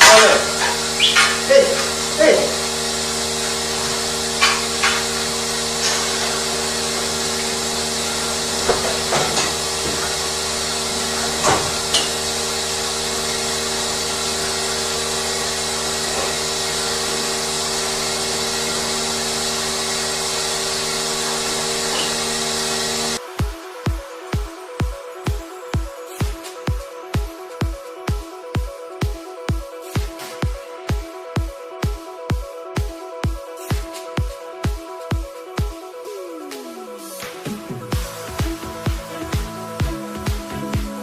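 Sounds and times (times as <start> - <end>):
machinery humming and hissing: 0.0 - 26.9, 36.1 - 41.0.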